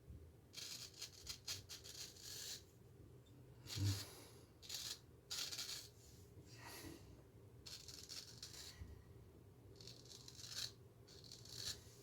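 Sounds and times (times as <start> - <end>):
razor scraping stubble: 4.6 - 5.9, 7.7 - 8.7, 9.8 - 11.8.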